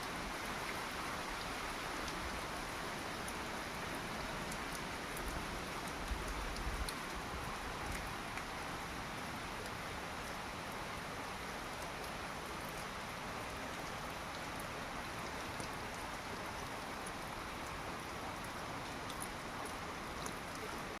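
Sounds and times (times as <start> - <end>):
rain hiss: 0.0 - 21.0
raindrop ticks: 3.1 - 8.6, 17.0 - 17.8, 18.4 - 21.0.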